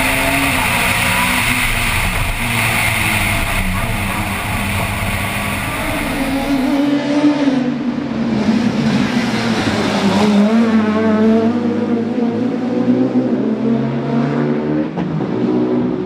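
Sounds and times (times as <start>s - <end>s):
car engine revving high: 0.0s - 7.9s.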